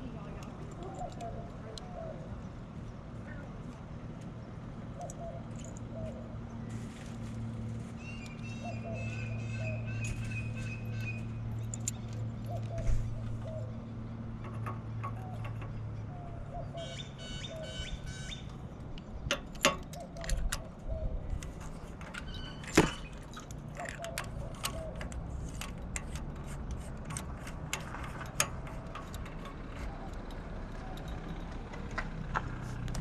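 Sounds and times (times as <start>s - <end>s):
birds chirping: 0.0s - 26.4s
low mechanical hum: 0.0s - 33.0s.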